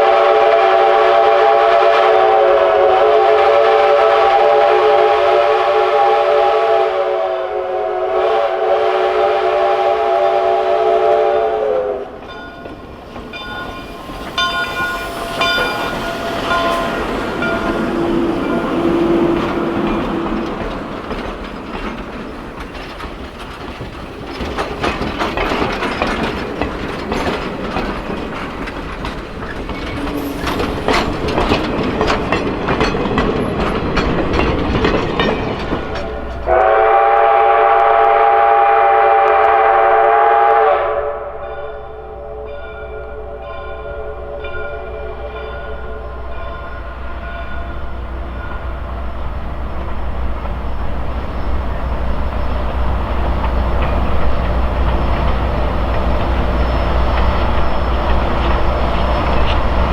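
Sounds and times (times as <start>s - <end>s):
steam locomotive whistle: 0.0s - 12.4s, 13.4s - 21.5s, 29.9s - 31.6s, 36.0s - 50.1s, 50.7s - 59.9s
steam train rumble: 0.0s - 59.9s
train wheels clicking over rail joints: 11.8s - 38.5s, 42.8s - 59.9s.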